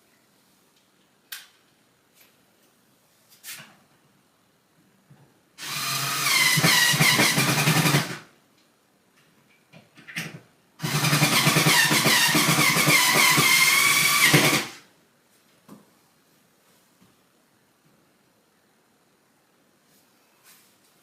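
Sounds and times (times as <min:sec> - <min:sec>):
power drill whining: 0:05.6 - 0:08.2, 0:10.8 - 0:14.8.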